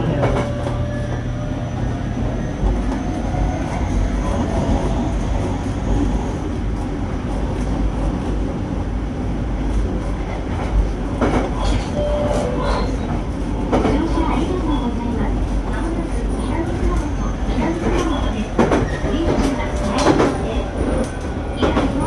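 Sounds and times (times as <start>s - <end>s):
train wheels rumbling on rails: 0.0s - 22.0s
rail-joint clicks: 16.8s - 22.0s.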